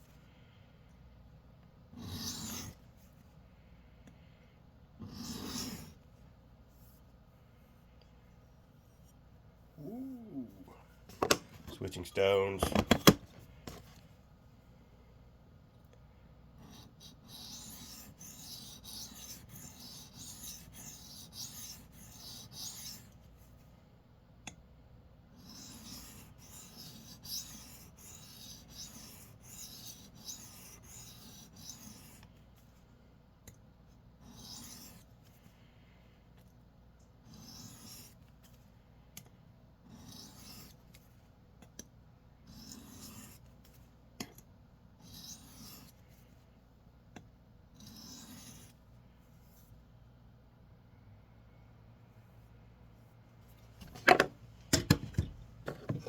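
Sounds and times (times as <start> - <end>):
knife scraping on sharpening stone: 47.8 - 48.7.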